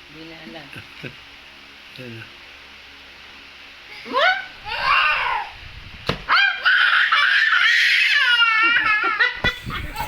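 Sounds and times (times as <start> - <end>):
child squealing: 4.0 - 5.6, 6.3 - 9.3.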